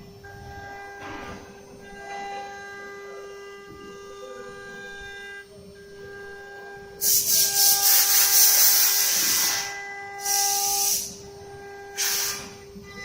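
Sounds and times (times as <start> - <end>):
cnc router spindle whine: 0.0 - 13.0
bit cutting with loud hiss: 7.0 - 11.2.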